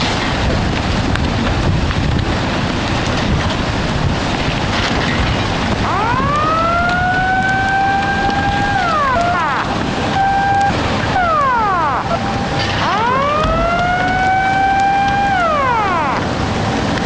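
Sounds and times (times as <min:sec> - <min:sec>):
constant rushing noise: 0:00.0 - 0:17.0
warning siren: 0:05.8 - 0:16.6.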